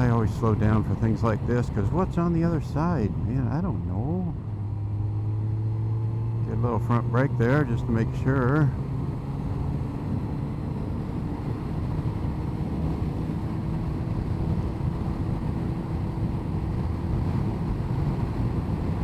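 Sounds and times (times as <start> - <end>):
motorcycle engine running: 0.0 - 19.0
wind on microphone: 9.7 - 19.0.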